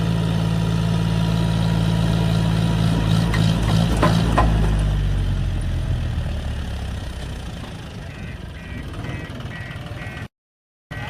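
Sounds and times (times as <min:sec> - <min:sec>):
heavy diesel engine idling: 0:00.0 - 0:02.9, 0:05.7 - 0:10.2.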